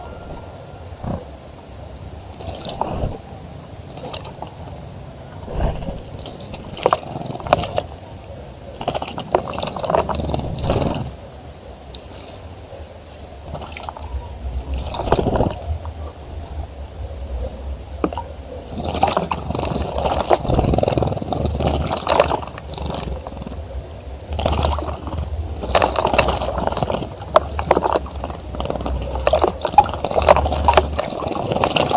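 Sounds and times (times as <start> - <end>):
steady low rumble: 0.0 - 8.8
water splashing in a bird bath: 2.2 - 31.9.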